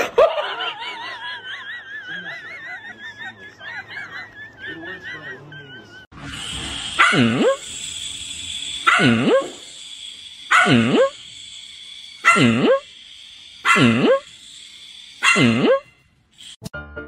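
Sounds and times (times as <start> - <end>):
steady hiss: 6.2 - 15.6, 16.2 - 16.6
puppy barking: 7.0 - 7.6, 8.8 - 9.6, 10.5 - 11.2, 12.2 - 12.8, 13.6 - 14.2, 15.2 - 15.8.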